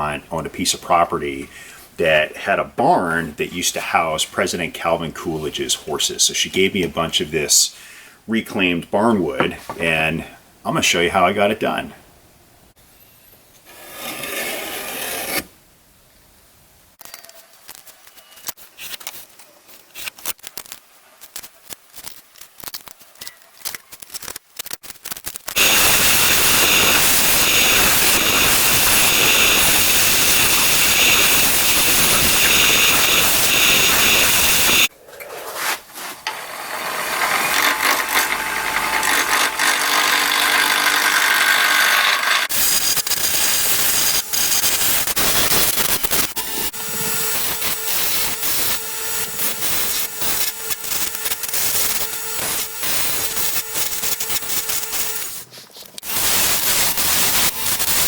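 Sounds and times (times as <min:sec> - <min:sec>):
scrapes and clicks: 0:17.0 - 0:29.6
power tool cutting wood: 0:25.6 - 0:34.9, 0:36.2 - 0:55.4, 0:56.0 - 0:58.0.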